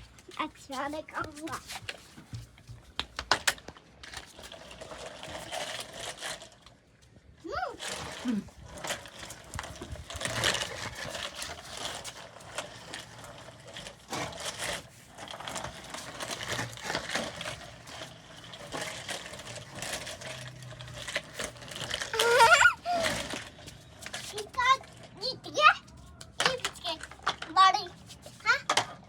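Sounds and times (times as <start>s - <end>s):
plastic toys clattering: 3.0s - 6.8s, 7.8s - 29.0s
high wavering cry: 22.2s - 23.2s.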